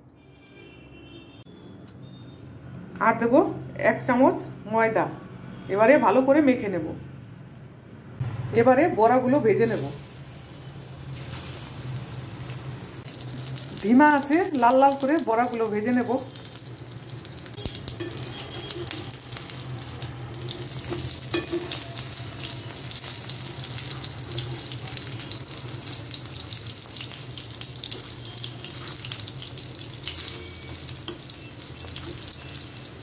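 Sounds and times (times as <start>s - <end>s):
fritters sizzling in oil: 9.6s - 33.0s.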